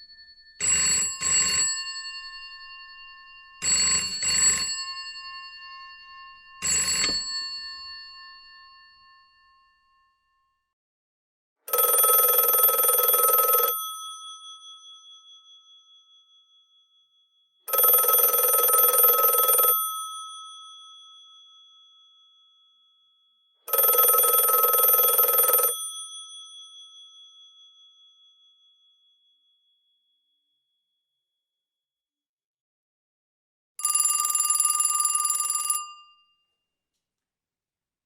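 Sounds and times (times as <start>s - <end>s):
telephone bell ringing: 0.0s - 10.1s, 11.7s - 14.7s, 17.7s - 21.0s, 23.7s - 26.6s, 33.8s - 36.4s.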